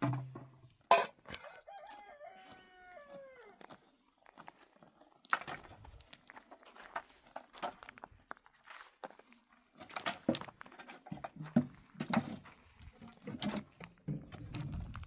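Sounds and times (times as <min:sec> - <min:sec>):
rooster crowing: 0:01.4 - 0:03.7.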